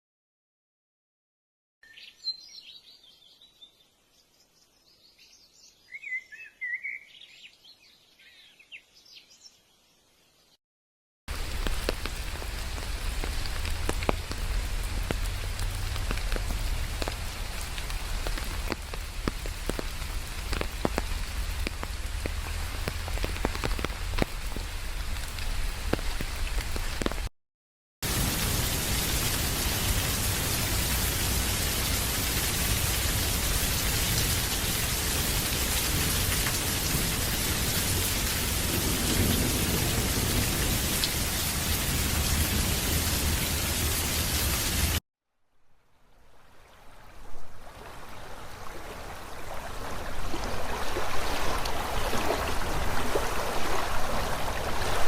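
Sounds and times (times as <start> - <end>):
rain: 11.3 - 27.3, 28.0 - 55.0
raindrops ticking: 11.3 - 27.3.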